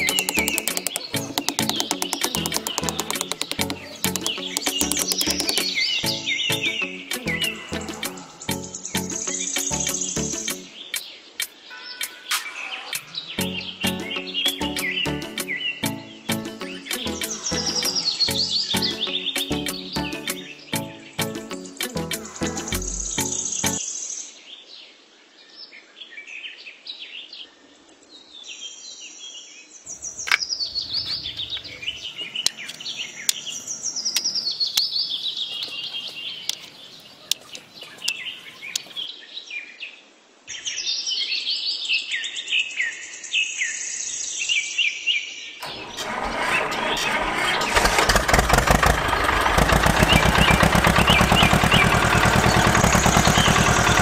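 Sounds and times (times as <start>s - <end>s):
small engine chugging: 0.0s - 5.8s, 45.6s - 54.0s
birds chirping and singing: 0.0s - 24.1s, 29.9s - 39.2s, 40.5s - 54.0s.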